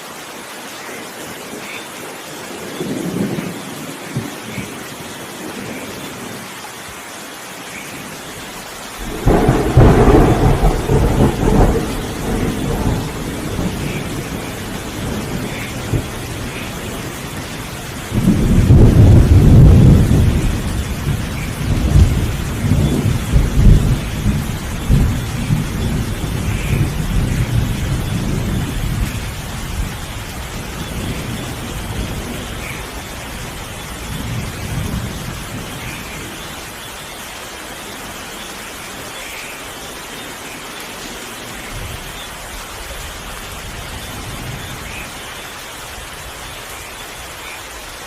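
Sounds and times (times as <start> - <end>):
steady rain falling: 0.0 - 48.0
thunder clap and rumbling: 9.0 - 36.8.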